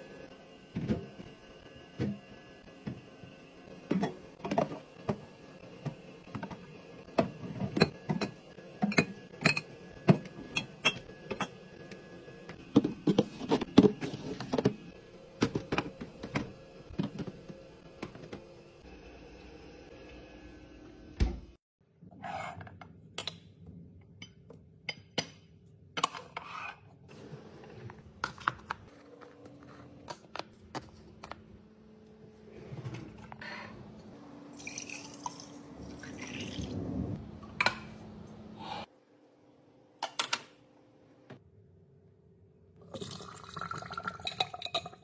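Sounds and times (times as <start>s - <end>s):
dishes clicking and knocking: 7.2s - 11.6s.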